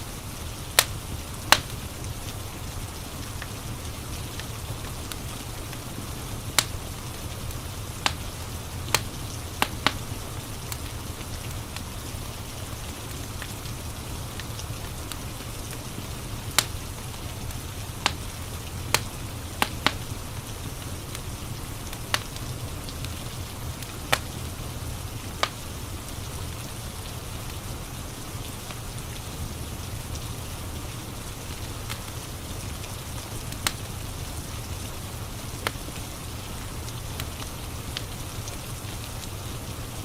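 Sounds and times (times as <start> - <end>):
steady rain: 0.0 - 40.0
wood fire crackling and popping: 0.0 - 40.0.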